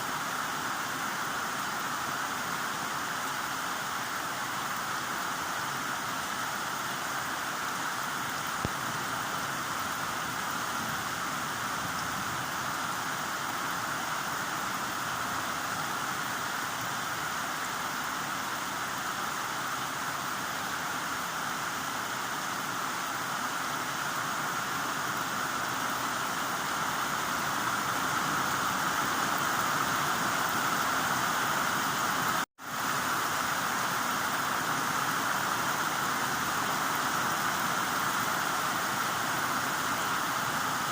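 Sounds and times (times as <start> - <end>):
heavy rain hissing: 0.0 - 40.9.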